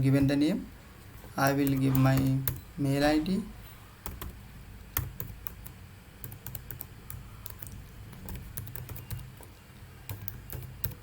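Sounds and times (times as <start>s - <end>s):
typing on computer keyboard: 4.0s - 4.4s, 5.0s - 9.5s, 10.1s - 11.0s.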